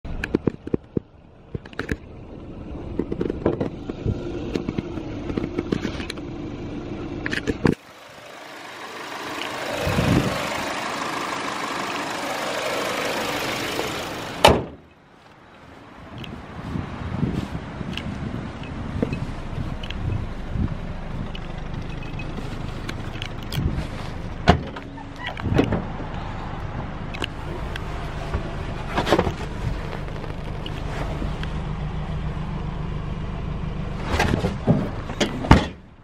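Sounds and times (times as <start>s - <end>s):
car engine running: 0.1s - 14.5s, 18.3s - 35.6s
car bonnet shutting bang: 14.4s - 14.8s.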